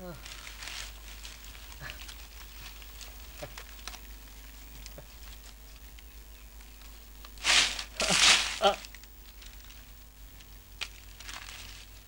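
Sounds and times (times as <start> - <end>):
stick scratching dry earth: 7.3 - 9.4
loud rushing hiss: 7.4 - 8.8.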